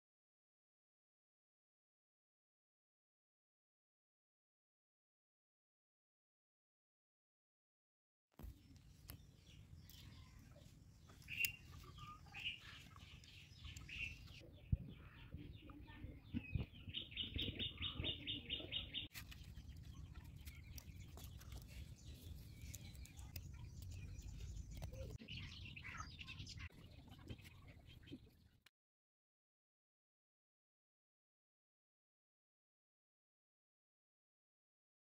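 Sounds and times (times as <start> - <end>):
faint birds chirping: 8.4 - 28.7
bird trill: 9.2 - 14.4, 16.3 - 28.2.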